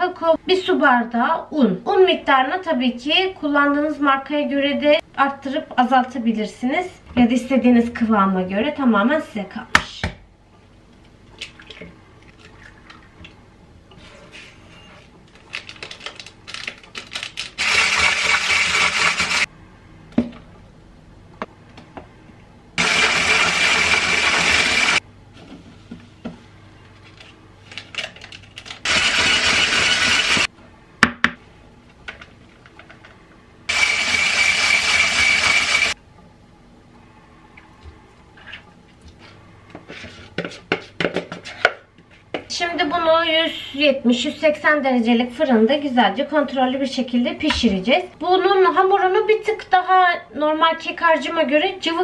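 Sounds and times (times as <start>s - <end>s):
electric mixer whining: 17.6s - 19.5s, 22.8s - 25.0s, 28.9s - 30.5s, 33.7s - 36.0s.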